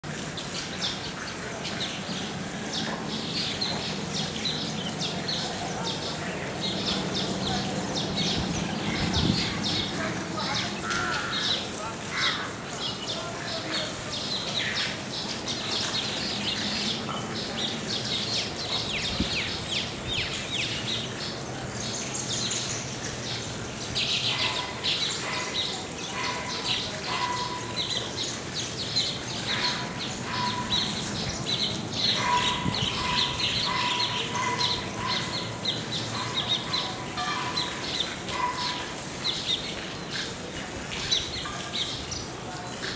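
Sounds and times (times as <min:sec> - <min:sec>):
birds chattering with high chirps: 0:00.0 - 0:42.9.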